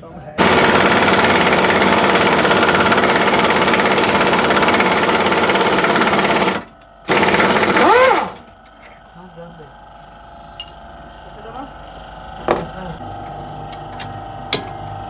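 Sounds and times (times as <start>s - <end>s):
pneumatic air tool hammering: 0.4s - 8.5s.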